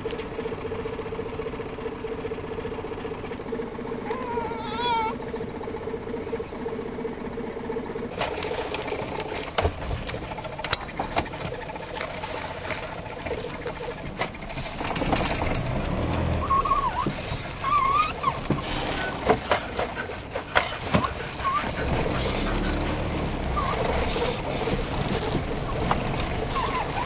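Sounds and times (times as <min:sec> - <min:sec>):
small car engine running: 0:00.0 - 0:27.0
levers clicking and clunking: 0:14.0 - 0:16.4.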